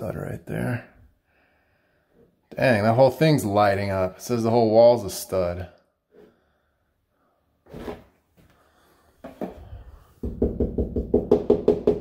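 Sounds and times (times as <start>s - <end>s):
knuckles rapping on drywall: 10.2s - 12.0s.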